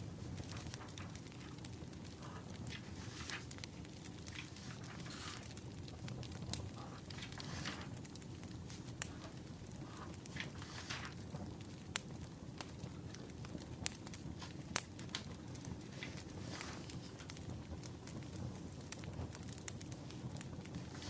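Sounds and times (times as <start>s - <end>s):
soft hisses: 0.0s - 5.7s, 6.7s - 11.2s, 15.7s - 17.3s
wood fire crackling: 0.0s - 21.0s.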